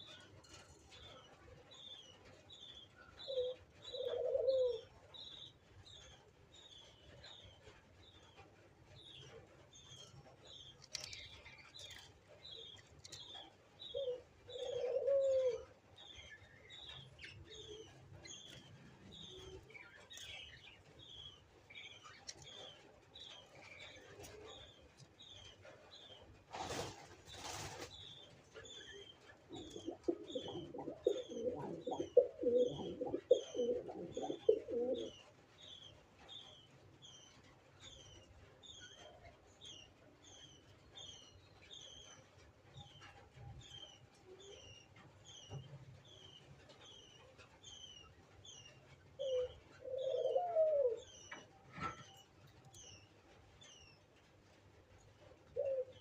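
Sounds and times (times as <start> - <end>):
doves cooing: 3.2 - 5.0, 12.6 - 24.8, 28.5 - 35.3, 49.2 - 52.2, 55.5 - 56.0
rustles: 9.0 - 38.3.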